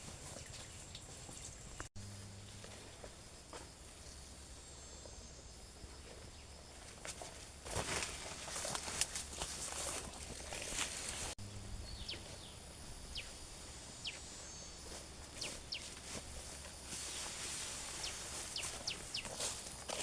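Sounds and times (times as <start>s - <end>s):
small birds chirping: 0.0s - 1.9s, 8.2s - 20.0s.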